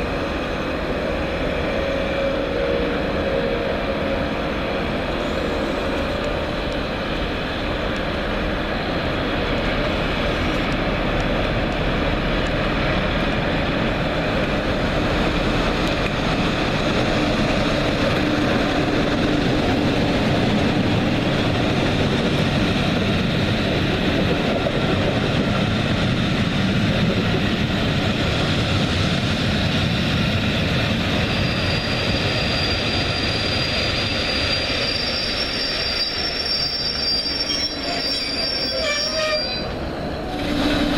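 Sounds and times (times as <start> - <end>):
underground train rumbling: 0.0 - 40.9
wheels squealing on rails: 31.0 - 40.9.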